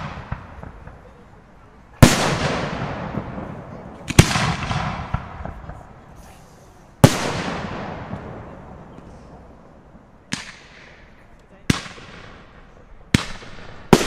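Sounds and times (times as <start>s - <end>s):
firework crackle: 0.0s - 14.0s
rumbling echo: 2.0s - 6.0s, 7.0s - 14.0s.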